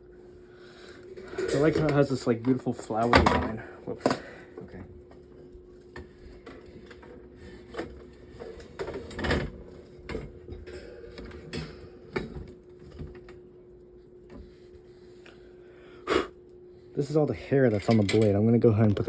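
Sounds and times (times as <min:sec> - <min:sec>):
steady hum: 0:00.0 - 0:19.0
metal fan parts knocking and scraping: 0:17.6 - 0:19.0.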